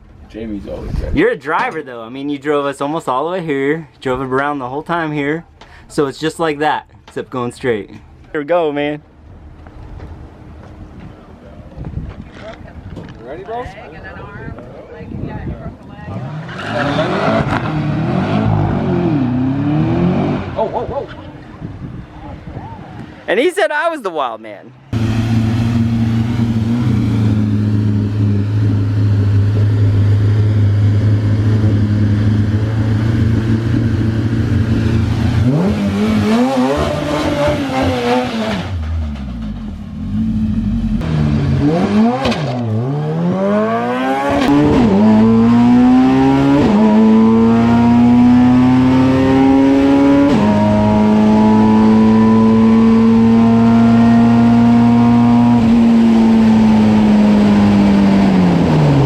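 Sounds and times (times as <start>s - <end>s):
racing engine revving: 16.1s - 20.9s, 24.9s - 59.0s.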